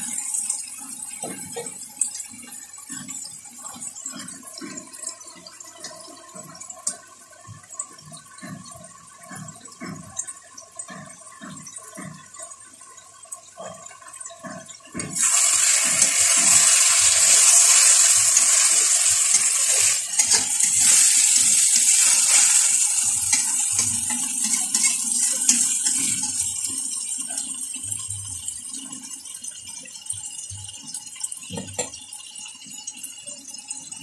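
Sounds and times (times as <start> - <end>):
food sizzling in a wok: 15.2 - 26.7.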